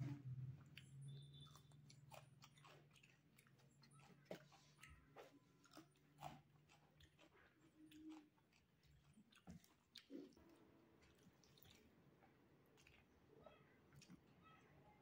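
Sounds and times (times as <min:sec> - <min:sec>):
faint low hum: 0:00.0 - 0:15.0
quiet chewing: 0:00.0 - 0:15.0.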